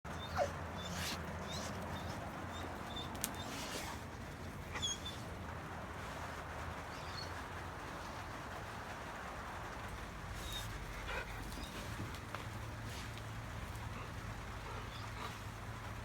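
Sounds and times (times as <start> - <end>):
dog whimpering: 0.1 - 3.9, 4.7 - 5.2
dog whining: 0.1 - 4.0, 4.7 - 5.2.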